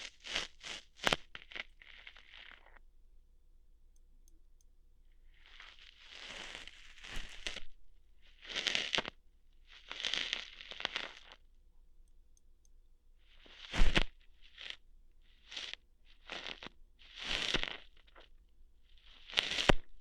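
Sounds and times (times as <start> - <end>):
ear hairs being plucked: 5.5 - 9.2, 13.5 - 14.8, 15.4 - 18.3, 19.1 - 20.0.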